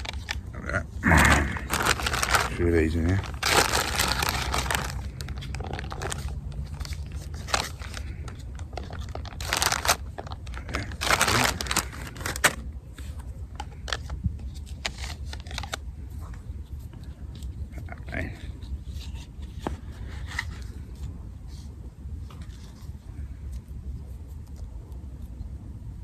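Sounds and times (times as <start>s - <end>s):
plastic packaging crinkling: 0.0s - 0.5s, 1.3s - 12.7s, 13.6s - 15.8s.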